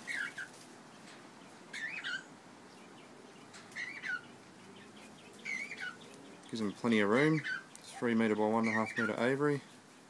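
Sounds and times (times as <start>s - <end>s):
cockatiel chirping: 0.0s - 0.5s, 1.7s - 2.3s, 3.8s - 4.3s, 5.4s - 6.1s.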